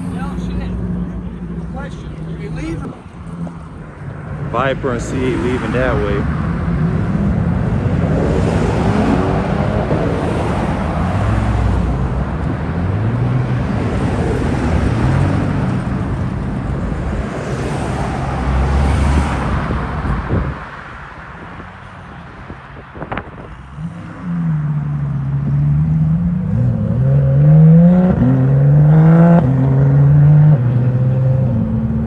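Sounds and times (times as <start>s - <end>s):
car engines revving and accelerating: 0.0s - 32.0s
traffic noise: 0.0s - 32.0s.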